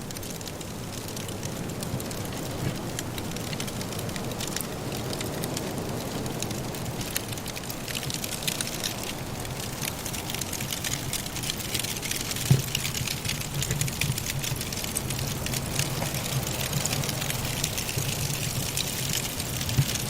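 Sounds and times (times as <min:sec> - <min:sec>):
wood fire crackling: 0:00.0 - 0:20.0
low steady rumble: 0:06.7 - 0:20.0.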